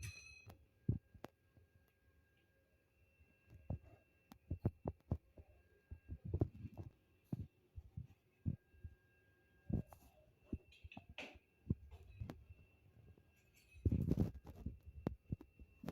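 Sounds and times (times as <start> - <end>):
faint high hum: 0.0 - 15.9.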